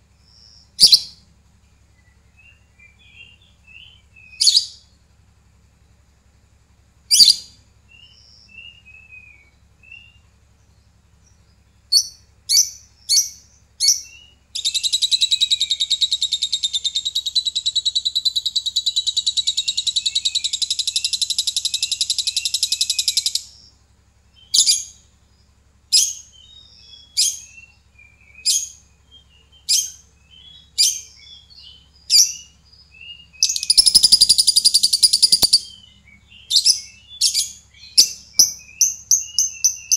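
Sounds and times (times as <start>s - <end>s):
lovebird chirping and trilling: 0.2s - 1.2s, 2.4s - 4.8s, 7.1s - 10.2s, 11.9s - 23.7s, 24.4s - 25.0s, 25.9s - 39.9s.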